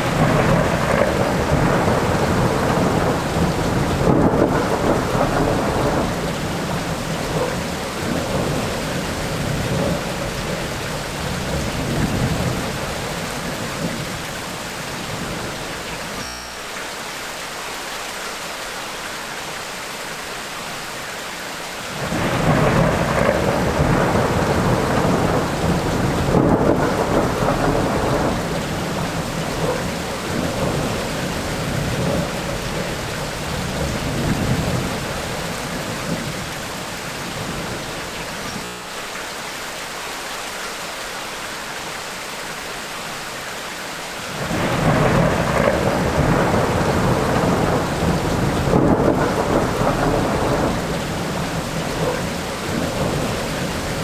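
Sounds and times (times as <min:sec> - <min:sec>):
rolling thunder: 0:00.0 - 0:16.2, 0:21.9 - 0:38.5, 0:44.3 - 0:54.0
heavy downpour: 0:00.0 - 0:54.0.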